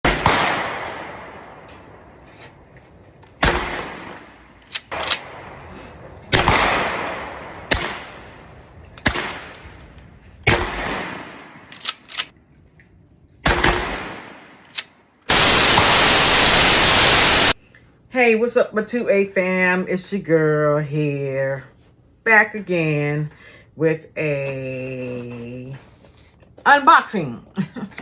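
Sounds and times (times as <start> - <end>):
shotgun shots echoing: 0.0 - 2.5, 3.4 - 12.3, 13.4 - 17.6
shotgun pump clicks: 4.6 - 5.3, 11.7 - 12.4, 13.6 - 14.9.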